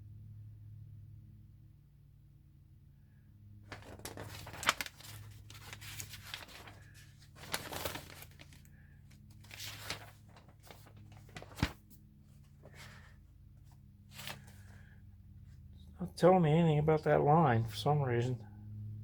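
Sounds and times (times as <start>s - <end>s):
paper snapping: 3.7s - 6.8s, 7.4s - 8.5s
paper pages rustling: 3.7s - 14.9s.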